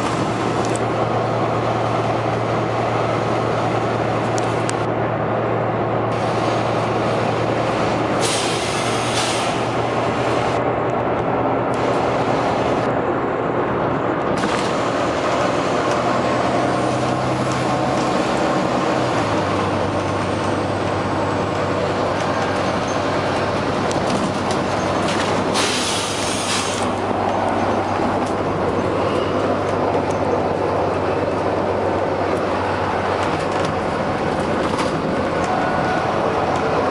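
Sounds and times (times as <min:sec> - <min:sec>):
bus diesel engine running: 0:00.0 - 0:36.9
air brake hisses: 0:08.2 - 0:09.7, 0:25.5 - 0:26.9.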